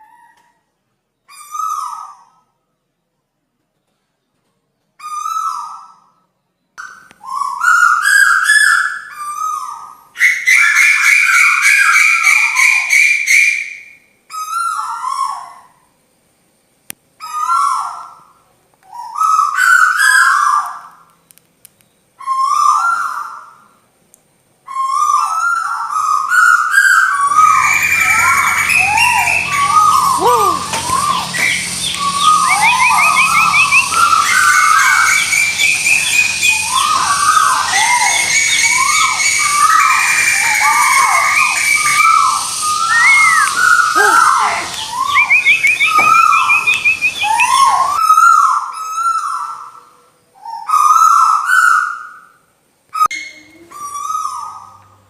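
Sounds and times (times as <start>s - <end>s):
chorus of bird chirps and trills: 1.2s - 2.6s, 5.0s - 16.0s, 16.7s - 21.1s, 21.8s - 23.9s, 24.6s - 55.0s
short whistled bird call: 26.8s - 48.0s
low hum: 27.2s - 38.1s.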